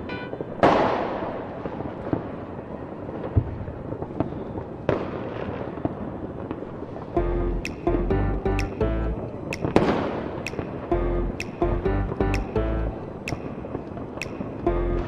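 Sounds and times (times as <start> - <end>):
fireworks bangs: 0.3 - 7.2, 9.5 - 10.9
small firework pops: 0.6 - 2.4, 3.1 - 6.6, 9.6 - 11.6, 13.3 - 14.6
music with bass beat: 7.2 - 9.8, 10.5 - 13.4, 14.7 - 15.0.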